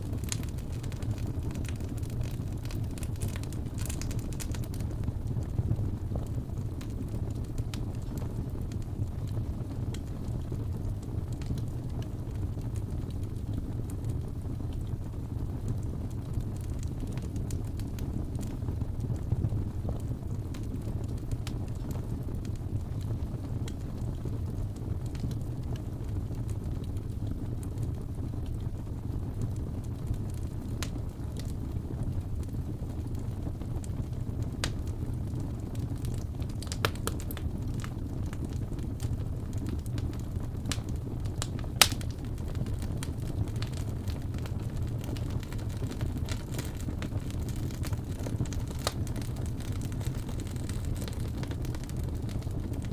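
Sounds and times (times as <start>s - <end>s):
fire crackles and pops: 0.0s - 52.9s
fire rumbling: 0.0s - 52.9s.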